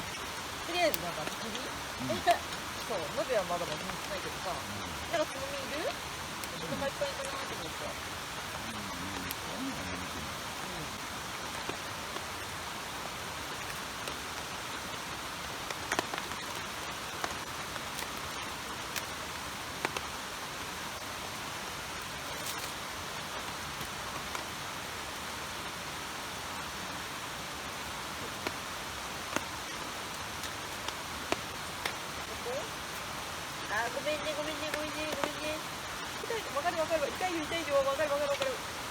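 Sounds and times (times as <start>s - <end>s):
water hissing: 0.0s - 19.1s
sharp pops and ticks: 0.1s - 7.8s, 15.6s - 19.2s, 28.3s - 33.1s, 34.4s - 36.2s.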